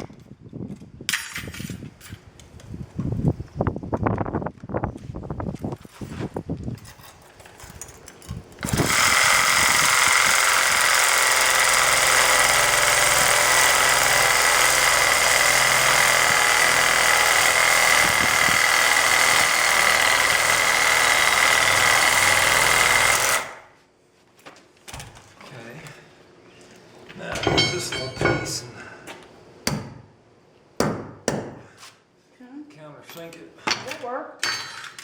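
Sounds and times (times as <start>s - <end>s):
power tool motor whining: 8.6s - 23.7s.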